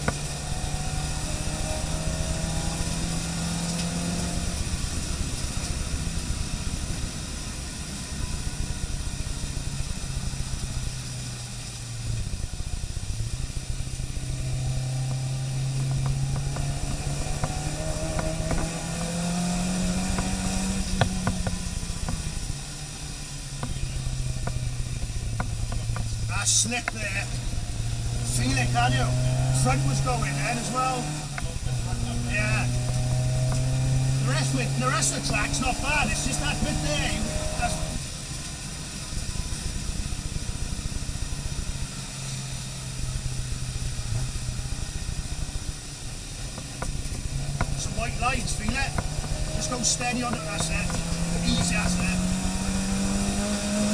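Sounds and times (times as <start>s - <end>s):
car engine running: 0.0s - 53.9s
tyres hissing on wet track: 13.1s - 53.9s.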